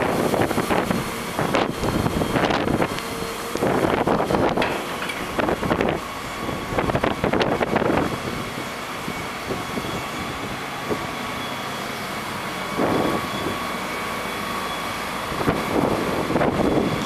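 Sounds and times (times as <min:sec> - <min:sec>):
rough machine bursts: 0:00.0 - 0:07.6
excavator running: 0:00.0 - 0:17.0
faint high whine: 0:07.9 - 0:17.0.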